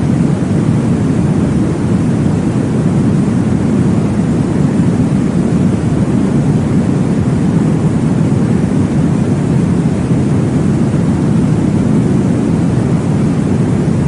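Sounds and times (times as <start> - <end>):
deep rushing noise: 0.0 - 14.0.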